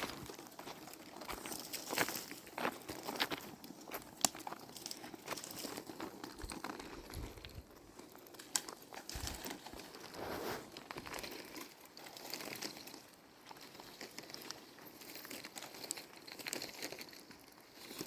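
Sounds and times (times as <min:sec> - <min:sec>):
rustling: 0:00.0 - 0:18.0.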